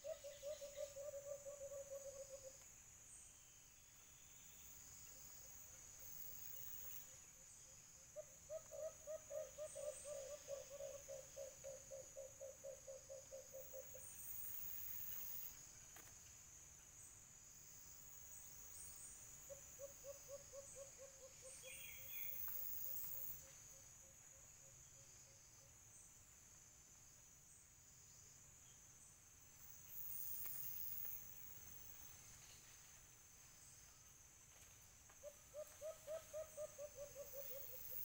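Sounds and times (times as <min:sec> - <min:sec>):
dove hooting: 0:00.0 - 0:02.5, 0:08.2 - 0:14.1, 0:35.2 - 0:38.0
high insect buzz: 0:26.8 - 0:38.0.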